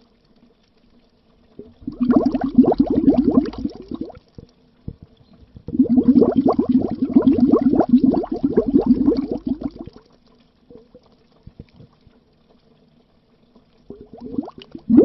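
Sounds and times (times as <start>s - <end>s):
bubbles gurgling under water: 1.5s - 10.1s, 13.8s - 15.0s.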